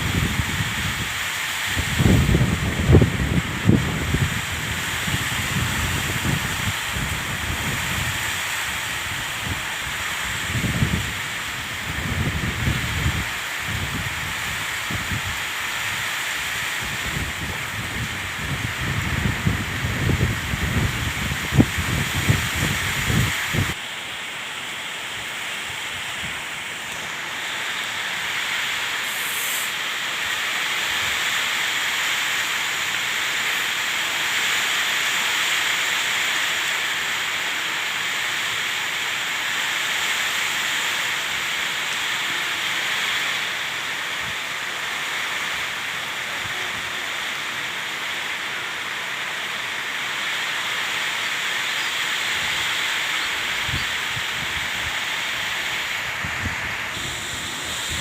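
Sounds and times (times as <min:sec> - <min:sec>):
water rushing: 0:00.0 - 0:58.0.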